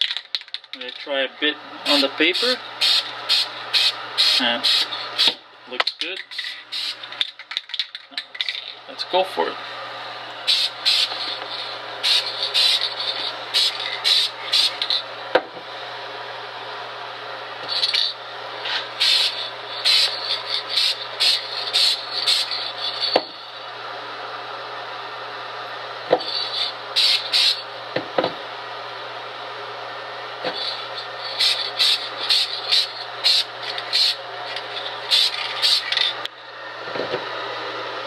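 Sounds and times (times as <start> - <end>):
spray paint can hissing: 1.9 - 5.3, 6.3 - 8.7, 10.4 - 15.0, 17.7 - 18.1, 19.0 - 23.2, 26.2 - 27.6, 30.5 - 36.1.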